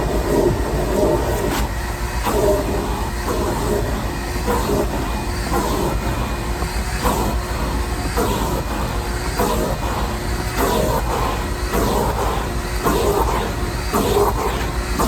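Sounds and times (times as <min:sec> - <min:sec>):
shop vac running: 0:00.0 - 0:15.0.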